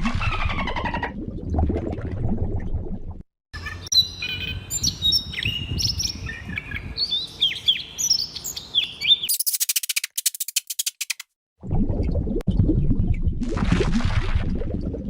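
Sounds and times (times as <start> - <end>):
small birds chirping: 3.6 - 11.2.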